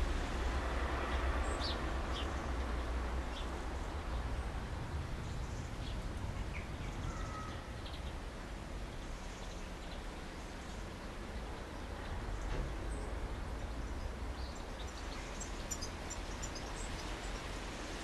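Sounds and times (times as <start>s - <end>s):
small birds chirping: 13.7s - 17.5s.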